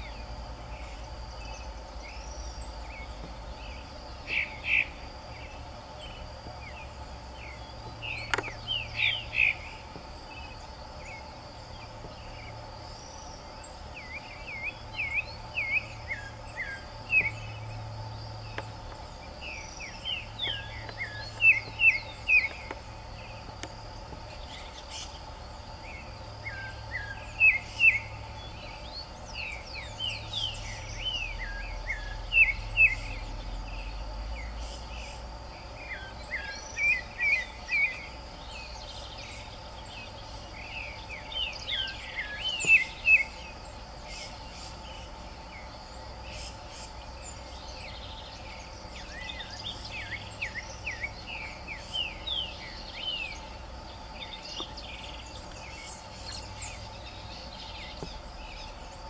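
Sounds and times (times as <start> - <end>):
insects humming: 0.0 - 59.0
bird whistling song: 0.8 - 17.8, 19.3 - 23.4, 25.9 - 35.2, 35.8 - 45.0, 46.3 - 53.5.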